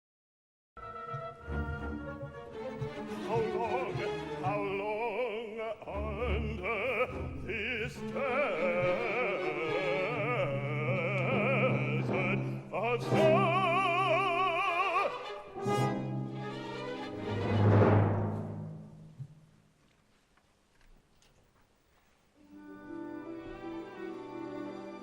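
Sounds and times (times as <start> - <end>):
operatic singing: 0.8 - 17.7
orchestra playing: 0.8 - 19.2, 22.5 - 25.0.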